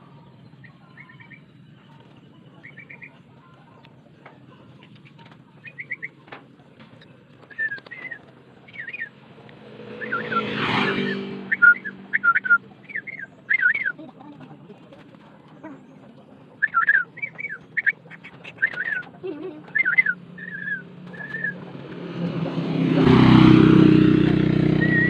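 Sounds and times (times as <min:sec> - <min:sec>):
songbird warbling: 0:00.4 - 0:03.3, 0:05.5 - 0:06.2, 0:06.9 - 0:09.2, 0:09.9 - 0:14.0, 0:15.6 - 0:19.1, 0:19.7 - 0:21.6
vehicle engine passing: 0:07.2 - 0:13.9, 0:17.6 - 0:25.0.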